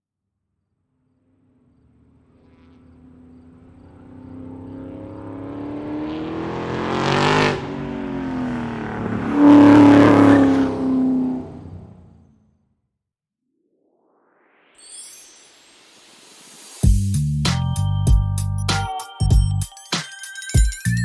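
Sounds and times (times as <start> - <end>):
vehicle engine surging: 1.2 - 12.6.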